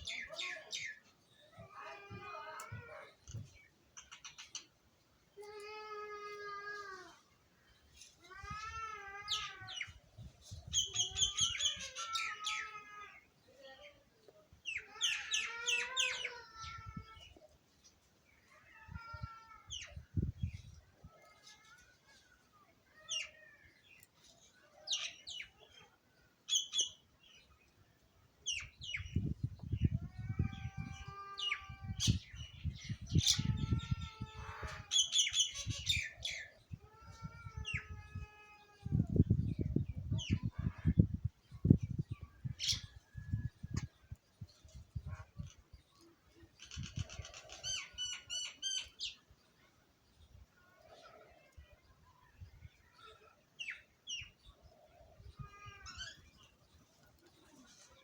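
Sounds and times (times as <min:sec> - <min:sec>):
small birds chirping: 0:00.0 - 0:05.7, 0:07.1 - 0:58.0
birds chirping: 0:24.8 - 0:38.0.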